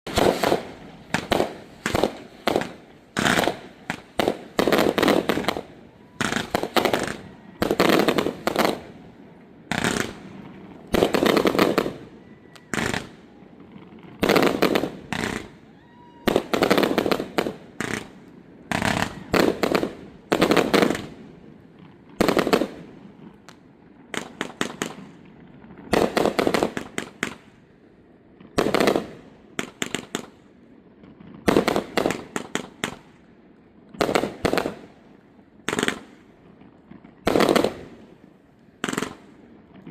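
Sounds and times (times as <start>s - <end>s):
fireworks shells bursting: 0.1s - 8.9s, 9.7s - 15.6s, 16.3s - 21.2s.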